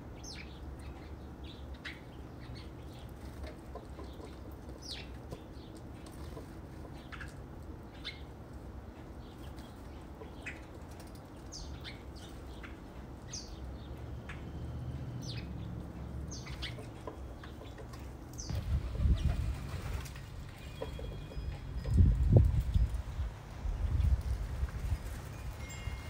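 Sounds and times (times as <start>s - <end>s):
birds chirping: 0.0s - 24.4s.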